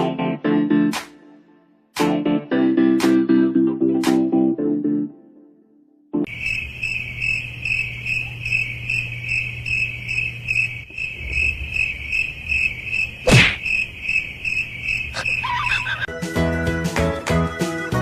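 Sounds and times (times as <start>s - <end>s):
music: 0.0s - 6.3s, 16.1s - 18.0s
sharp knock: 13.3s - 13.6s
high rhythmic chirping: 14.1s - 16.1s.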